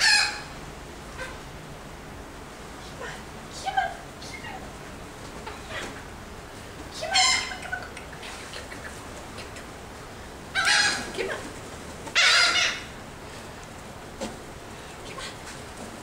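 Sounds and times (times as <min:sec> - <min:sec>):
seagulls squawking: 0:00.0 - 0:00.6, 0:10.6 - 0:11.2, 0:12.1 - 0:13.0.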